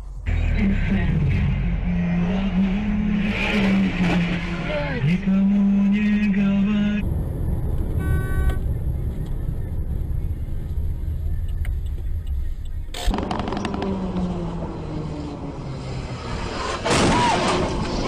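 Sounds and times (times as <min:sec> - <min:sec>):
vehicle steady low tone: 0:00.0 - 0:15.8
car engine and road rumble: 0:00.0 - 0:18.0
brief horn-like tone: 0:08.0 - 0:08.6.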